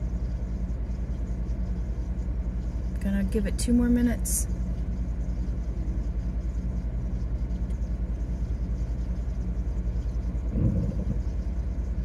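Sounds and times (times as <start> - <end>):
car engine idling: 7.6 - 11.7.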